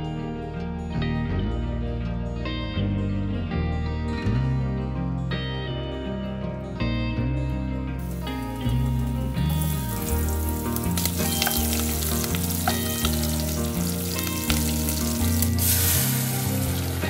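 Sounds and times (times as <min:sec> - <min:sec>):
background music with bass line: 0:00.0 - 0:17.0
food sizzling in a pan: 0:08.0 - 0:17.0.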